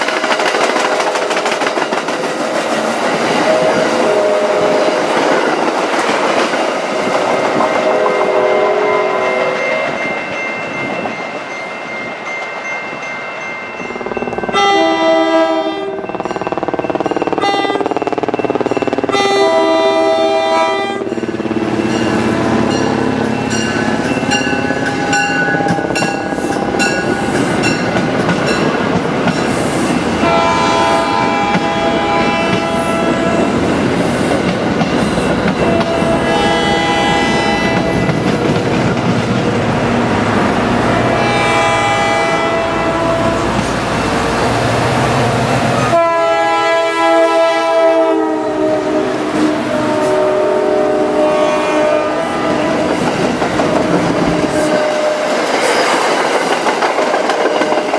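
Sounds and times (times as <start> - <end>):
passing train: 0.0 - 57.9
locomotive horn blasts: 3.4 - 5.0, 7.7 - 10.0, 14.5 - 16.2, 17.4 - 17.9, 19.1 - 23.0, 30.2 - 33.6, 35.6 - 38.1, 41.1 - 43.6, 45.8 - 53.0, 53.8 - 55.4.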